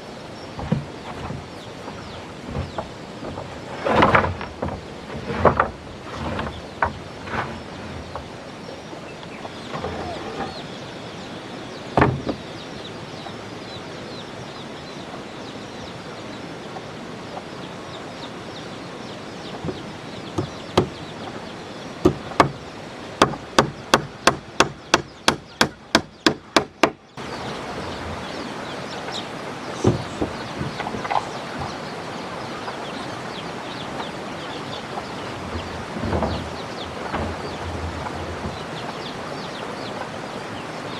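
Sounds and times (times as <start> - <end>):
chickens clucking faintly: 0.0 - 40.9.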